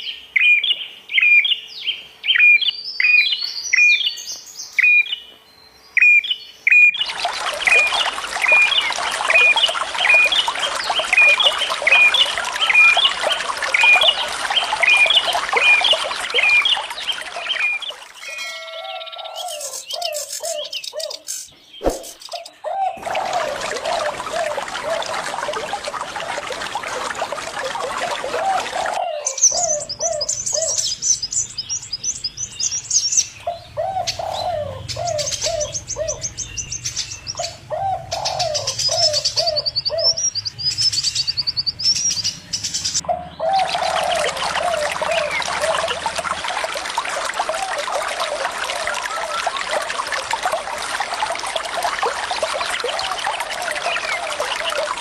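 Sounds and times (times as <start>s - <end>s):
small birds chirping: 0.0s - 46.4s
running water: 6.8s - 20.5s, 21.8s - 55.0s
dove cooing: 22.0s - 30.8s, 33.5s - 36.2s, 37.4s - 40.2s, 43.1s - 46.5s.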